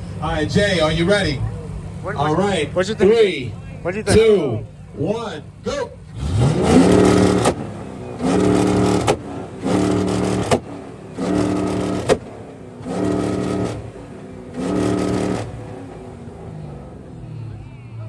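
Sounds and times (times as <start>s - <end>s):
car engine revving: 0.0s - 18.0s
exhaust crack: 0.0s - 18.0s.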